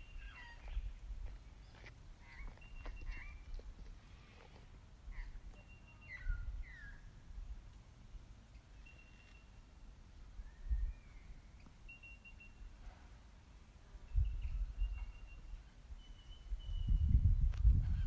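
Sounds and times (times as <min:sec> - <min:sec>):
birds whistling: 0:00.0 - 0:01.0, 0:01.7 - 0:03.5, 0:05.1 - 0:07.2, 0:10.4 - 0:12.6, 0:14.2 - 0:18.0.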